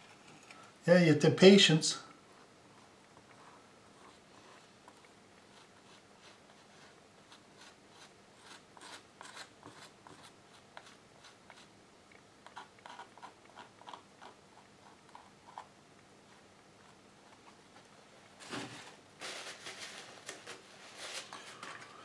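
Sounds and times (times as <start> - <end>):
hand tool scratching paper: 2.4 - 11.7, 12.4 - 15.7.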